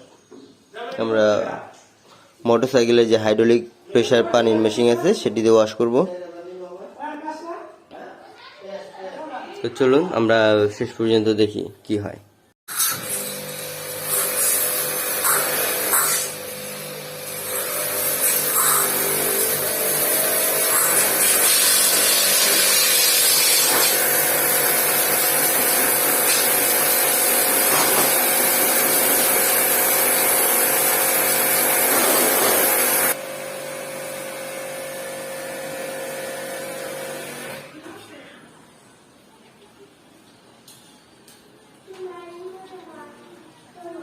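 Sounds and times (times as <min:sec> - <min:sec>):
water jet hissing: 0:12.7 - 0:33.2
pressure washer motor humming: 0:12.7 - 0:37.7.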